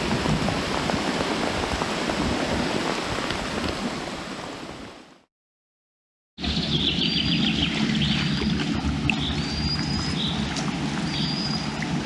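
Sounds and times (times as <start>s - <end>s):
bird whistling song: 6.5s - 8.5s, 9.2s - 11.8s.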